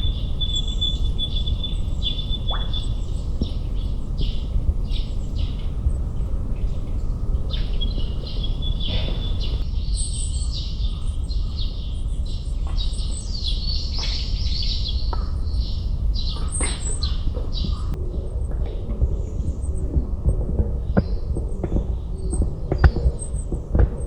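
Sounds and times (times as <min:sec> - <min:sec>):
small birds chirping: 0:00.0 - 0:23.9
steady low rumble: 0:00.0 - 0:24.0.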